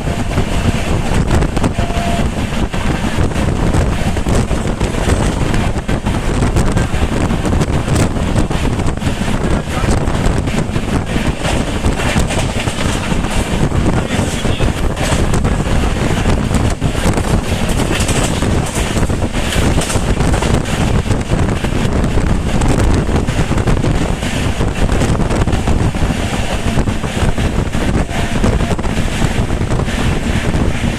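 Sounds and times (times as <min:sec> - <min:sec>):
moving train rumble: 0:00.0 - 0:30.9
wind buffeting microphone: 0:00.0 - 0:30.9
small rattles and knocks: 0:16.6 - 0:20.8.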